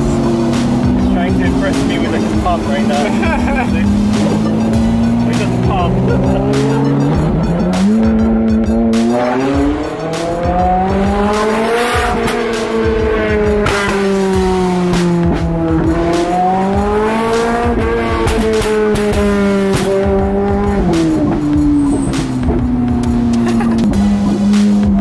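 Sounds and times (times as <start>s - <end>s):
sports car engine revving: 0.0s - 25.0s.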